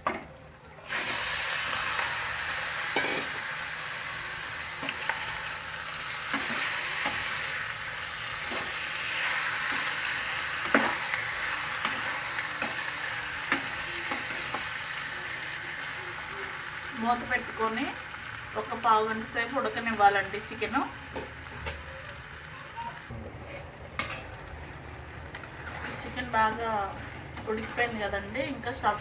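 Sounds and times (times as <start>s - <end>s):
chicken sizzling in hot oil: 0.3s - 23.1s
ladle clinking and scraping pan: 2.9s - 3.4s.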